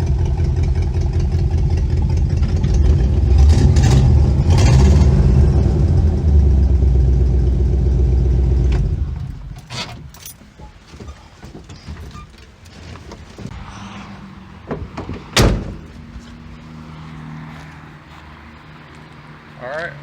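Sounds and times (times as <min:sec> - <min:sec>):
car engine running: 0:00.0 - 0:09.6.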